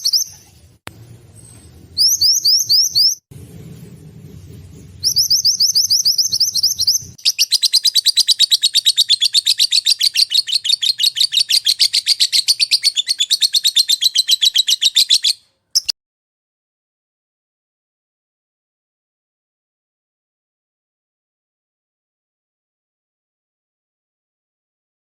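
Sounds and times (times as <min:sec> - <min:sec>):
songbird chirps and trill: 0:00.0 - 0:00.8, 0:01.4 - 0:03.3, 0:05.0 - 0:15.9.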